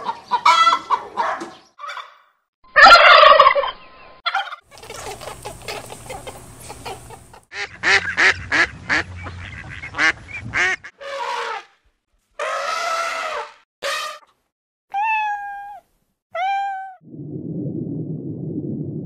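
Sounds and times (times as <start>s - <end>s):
ducks chattering: 2.8s - 10.9s
loud duck quacks: 4.8s - 11.7s.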